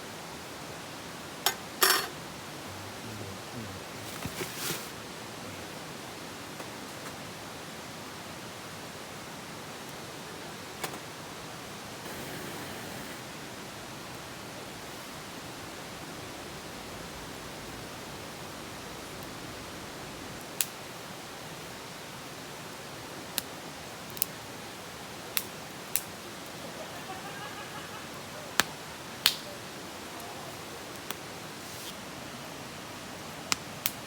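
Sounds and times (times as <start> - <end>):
fire hiss: 11.8 - 32.2
campfire crackling and popping: 12.0 - 15.1, 20.4 - 21.0, 22.6 - 27.2, 28.1 - 31.3, 33.5 - 34.0.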